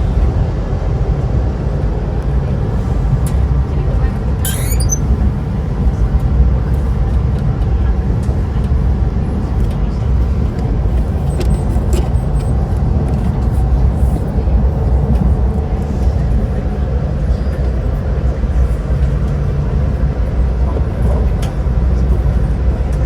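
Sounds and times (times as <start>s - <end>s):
train rumble inside carriage: 0.0s - 23.0s.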